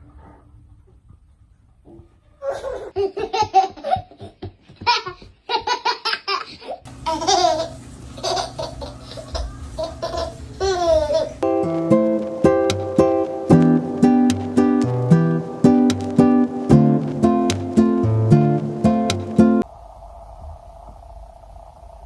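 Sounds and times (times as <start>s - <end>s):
baby laughing: 2.4s - 11.4s.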